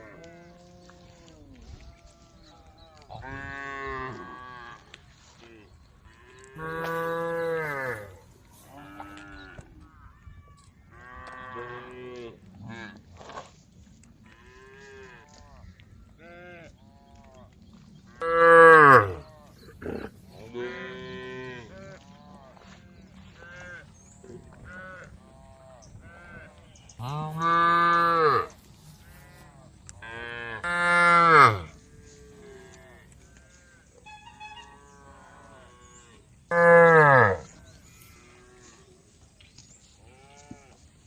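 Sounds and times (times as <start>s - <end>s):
cows mooing: 6.6s - 9.5s, 18.2s - 21.7s, 27.0s - 33.0s, 34.9s - 38.6s.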